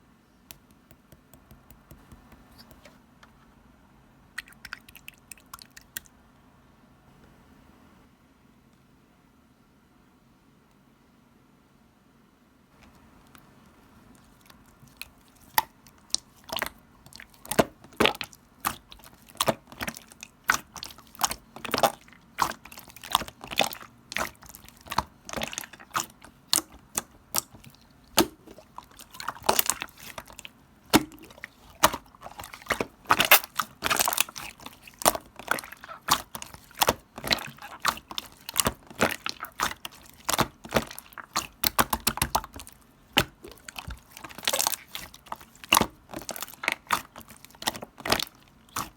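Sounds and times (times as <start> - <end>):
slime clicking and popping: 15.4 - 48.9.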